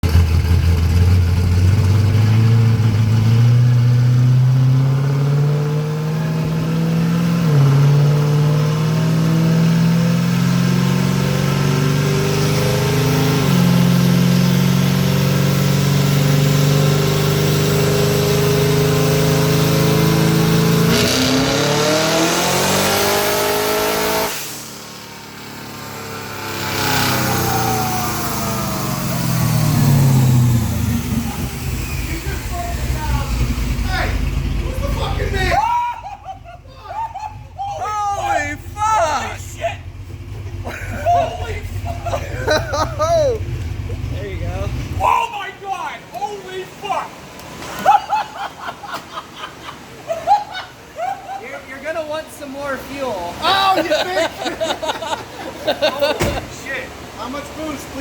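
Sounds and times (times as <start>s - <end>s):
car engine revving on dyno: 0.0s - 35.6s, 39.8s - 45.0s.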